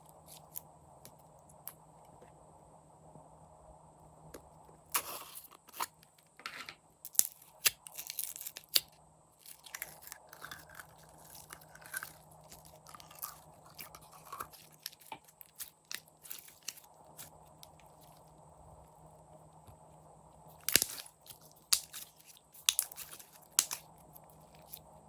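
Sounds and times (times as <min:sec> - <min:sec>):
slime crackling and popping: 0:07.1 - 0:17.9, 0:20.6 - 0:23.9.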